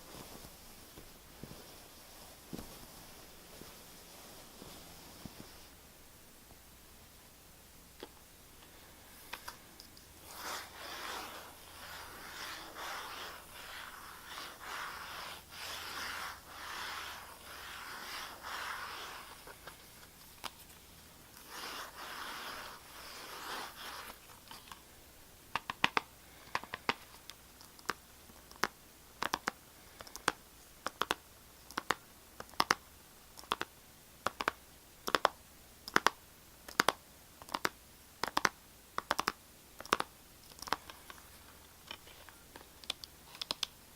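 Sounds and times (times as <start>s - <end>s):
scratching on a hard surface: 9.3s - 24.8s.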